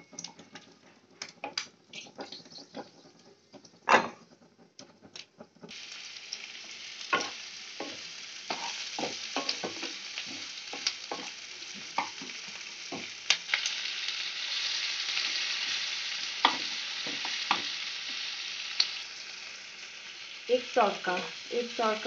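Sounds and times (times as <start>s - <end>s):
wooden spatula knocking and scraping pan: 0.0s - 5.8s, 7.1s - 13.2s, 16.4s - 18.2s
vegetables sizzling in hot oil: 1.2s - 22.0s.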